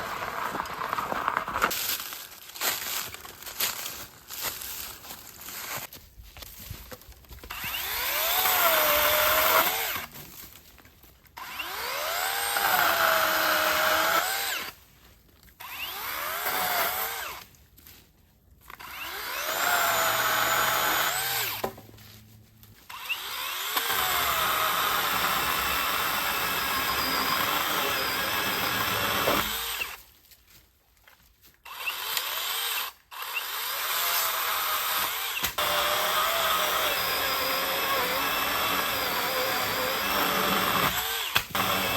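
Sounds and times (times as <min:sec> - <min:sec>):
battery saw cutting wood: 0:07.5 - 0:10.1, 0:11.4 - 0:14.8, 0:15.6 - 0:17.4, 0:18.8 - 0:21.6, 0:22.9 - 0:30.0, 0:31.6 - 0:41.9.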